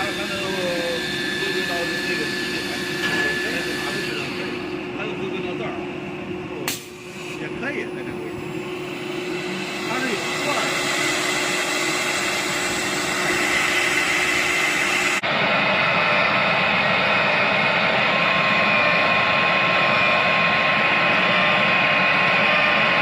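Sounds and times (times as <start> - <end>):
router spindles whining: 0.0 - 4.8, 8.9 - 15.3.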